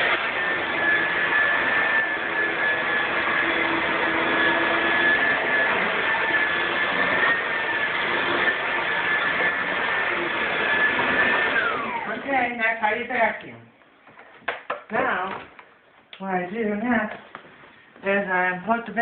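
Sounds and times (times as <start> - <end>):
vacuum cleaner running: 0.0 - 13.4.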